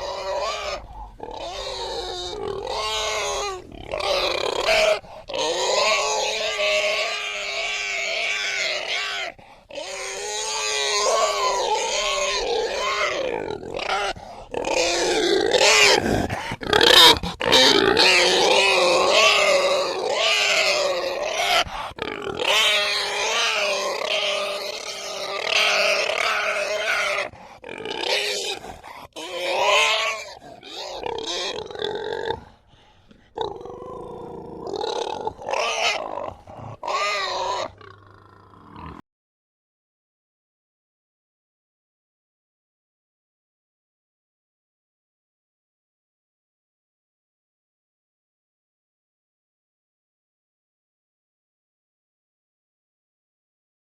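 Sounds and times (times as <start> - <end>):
pigs grunting and squealing: 0.0 - 39.0.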